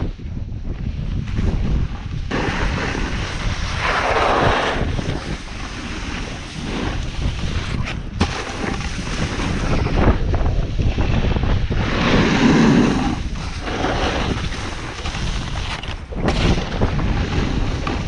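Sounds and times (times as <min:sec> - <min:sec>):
wind on microphone: 0:00.0 - 0:18.0
snowboard scraping snow: 0:01.2 - 0:18.0.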